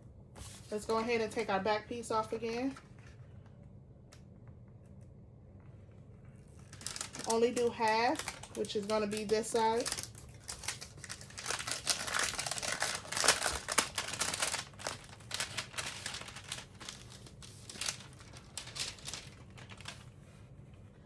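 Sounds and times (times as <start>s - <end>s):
adhesive liner peeling and crinkling: 6.6s - 20.0s.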